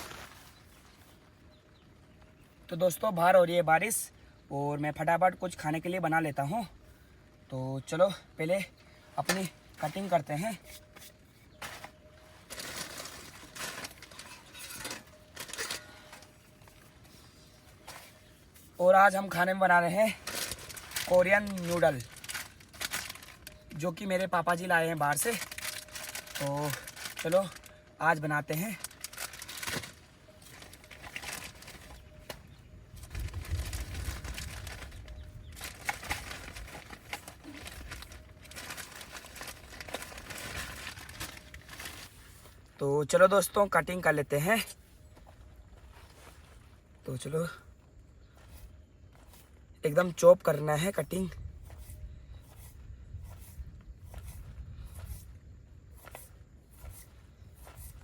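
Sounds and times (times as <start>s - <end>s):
packaging rustling and crinkling: 0.0s - 1.3s, 9.2s - 42.7s
rustling and clinking: 10.6s - 17.2s.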